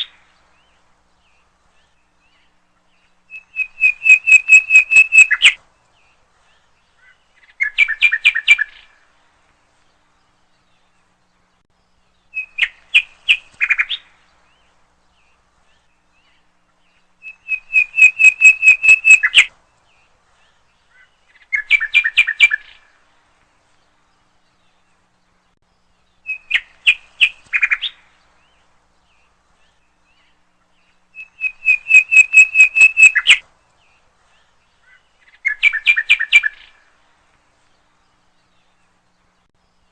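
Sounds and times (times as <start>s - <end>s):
songbird whistling: 3.3s - 5.6s, 12.3s - 14.0s, 17.2s - 19.5s, 26.2s - 28.0s, 31.1s - 33.4s, 34.9s - 36.8s.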